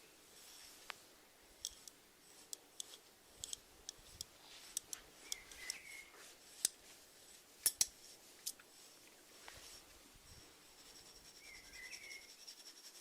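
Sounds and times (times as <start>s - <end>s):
snails rasping clicks: 1.6s - 5.8s.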